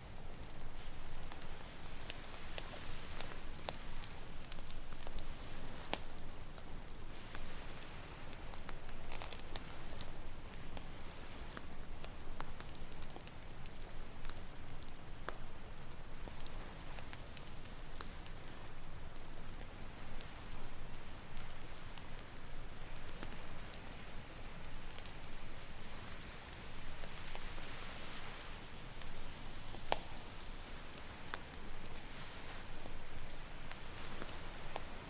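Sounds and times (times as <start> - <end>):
campfire crackling: 0.0 - 35.0
ocean waves on shore: 0.1 - 11.7, 22.8 - 35.0.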